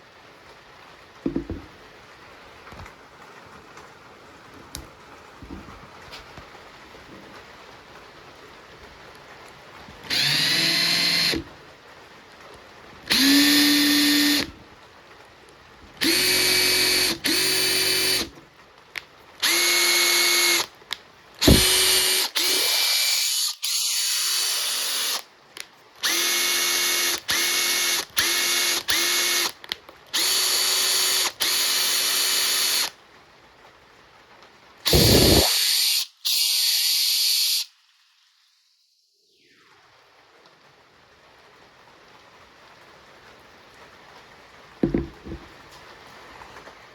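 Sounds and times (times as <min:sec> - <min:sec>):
impact driver whine: 0:13.1 - 0:14.5, 0:16.0 - 0:18.3, 0:21.4 - 0:25.2, 0:34.9 - 0:37.7.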